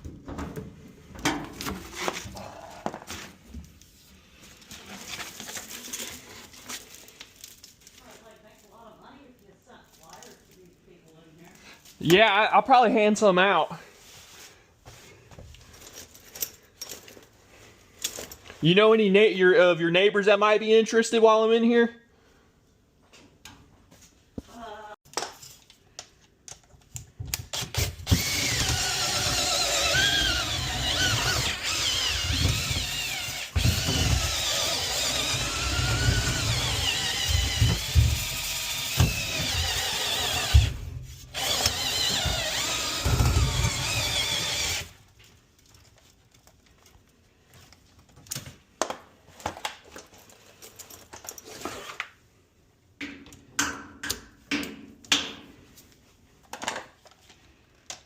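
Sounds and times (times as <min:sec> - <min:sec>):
power drill spinning brush in duct: 0:28.0 - 0:44.9.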